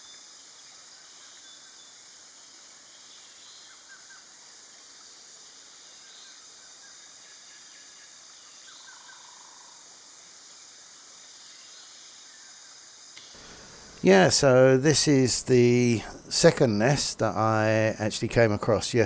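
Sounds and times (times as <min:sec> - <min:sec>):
high-pitched hiss: 0:13.2 - 0:19.0.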